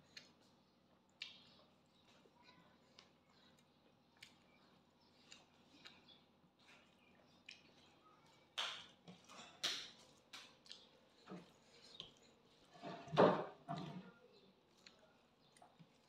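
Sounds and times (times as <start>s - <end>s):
mouth smacks from chewing: 0.0s - 2.3s, 2.9s - 12.6s.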